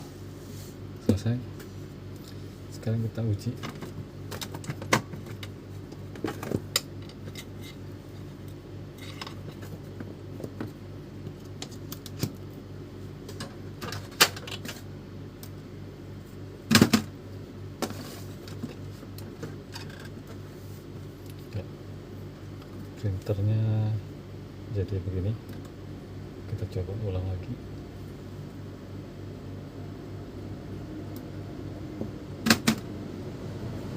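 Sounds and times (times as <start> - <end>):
printer mechanism humming: 30.0 - 33.9.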